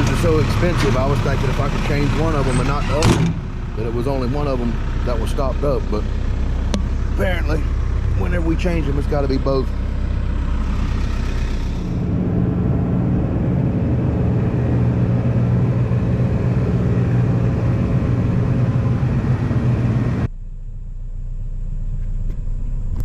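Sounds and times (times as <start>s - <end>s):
heavy diesel engine running: 0.0s - 20.4s.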